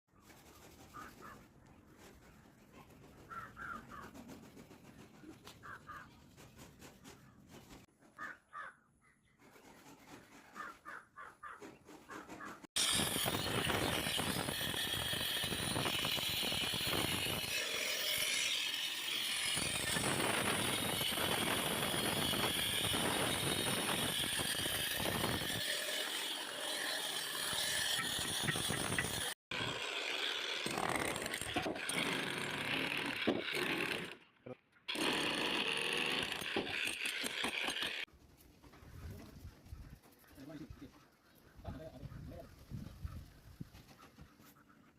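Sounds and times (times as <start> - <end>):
crows cawing: 3.3 - 4.1, 5.6 - 6.1, 8.2 - 8.9, 10.6 - 11.6
saw grinding through concrete: 12.7 - 34.2, 34.9 - 38.1.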